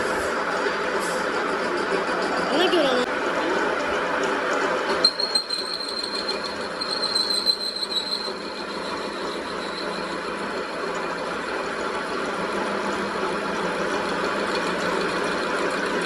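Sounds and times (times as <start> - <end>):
metalworking machinery noise: 0.0 - 16.0
high-pitched squeal: 4.9 - 11.3.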